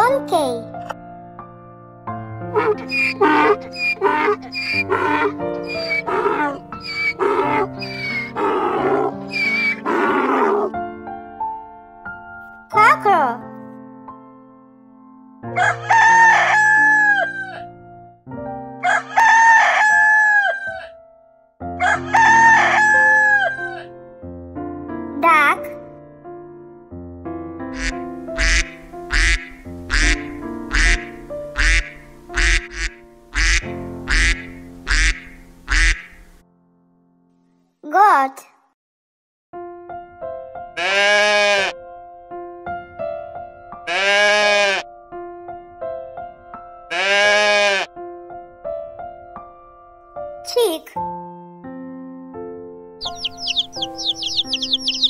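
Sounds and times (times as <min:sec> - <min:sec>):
background music: 0:00.0 - 0:37.2, 0:39.6 - 0:55.0
donkey braying: 0:02.5 - 0:10.7, 0:27.8 - 0:36.1, 0:43.9 - 0:44.8, 0:46.9 - 0:47.9, 0:53.0 - 0:55.0
duck quacking: 0:02.6 - 0:10.7, 0:27.8 - 0:36.2, 0:46.9 - 0:47.9, 0:53.0 - 0:55.0.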